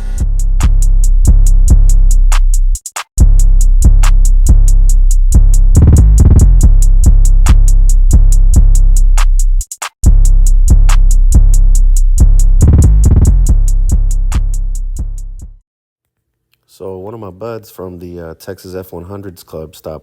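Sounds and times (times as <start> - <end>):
electronic music with drum beat: 0.0 - 15.6.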